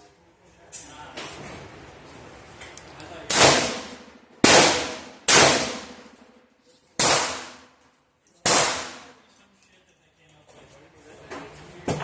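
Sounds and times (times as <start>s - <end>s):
gunshots: 3.3s - 6.0s, 7.0s - 7.7s, 8.5s - 9.1s.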